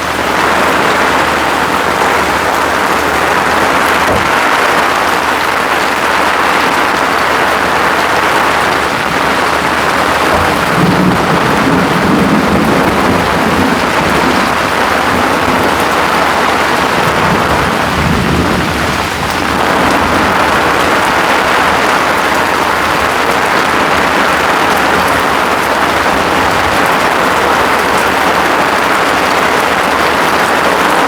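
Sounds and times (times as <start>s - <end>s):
heavy rain on an umbrella: 0.0s - 31.0s
low rumble of thunder: 0.0s - 31.0s.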